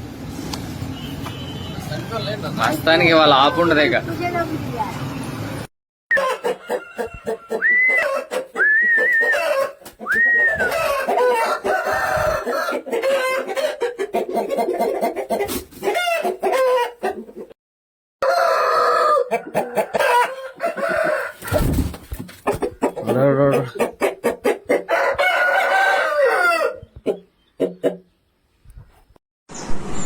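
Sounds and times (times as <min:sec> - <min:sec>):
roosters crowing: 0:06.1 - 0:13.9, 0:18.2 - 0:21.8, 0:22.6 - 0:27.0
chickens clucking: 0:06.1 - 0:17.6, 0:18.3 - 0:29.1.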